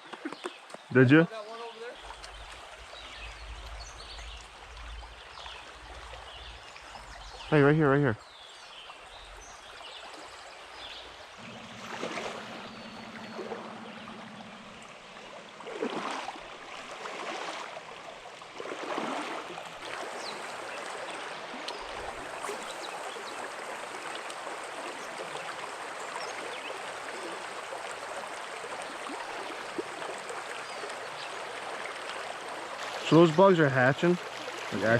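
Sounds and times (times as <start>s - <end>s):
creek water babbling: 0.0s - 34.9s
water splashes: 0.0s - 34.9s
faint low hum: 11.2s - 17.1s.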